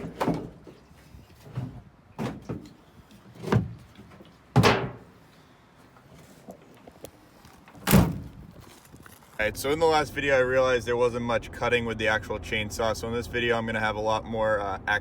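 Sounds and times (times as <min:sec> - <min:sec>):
door slam: 0:07.8 - 0:08.3.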